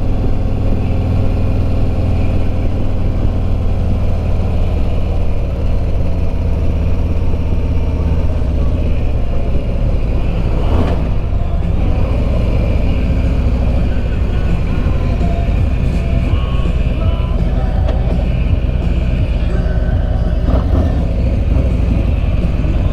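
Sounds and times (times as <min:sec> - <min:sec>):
motorcycle engine cruising: 0:00.0 - 0:22.9
brief whoosh: 0:10.0 - 0:13.4.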